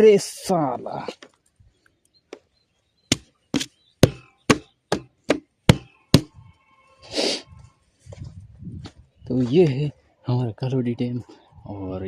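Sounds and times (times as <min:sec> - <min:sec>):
sharp knocks: 0:03.1 - 0:06.3.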